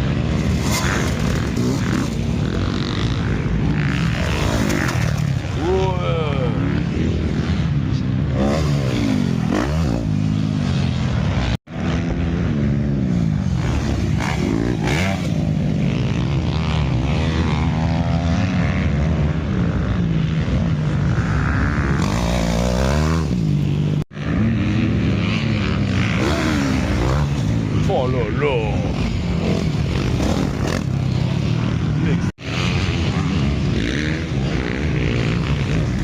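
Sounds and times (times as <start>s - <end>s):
motocross engines revving: 0.0s - 36.0s.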